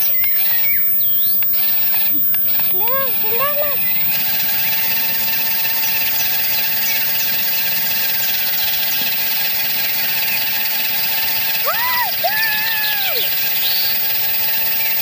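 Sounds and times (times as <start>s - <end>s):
small water pump motor whirring: 0.0s - 15.0s.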